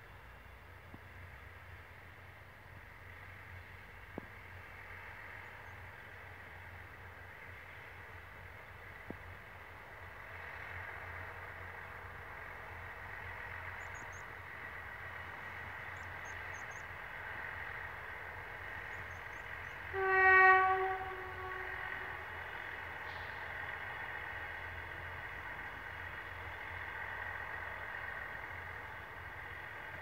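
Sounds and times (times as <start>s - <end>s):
diesel train engine and rail drone: 0.0s - 30.0s
train horn blast: 19.8s - 23.4s.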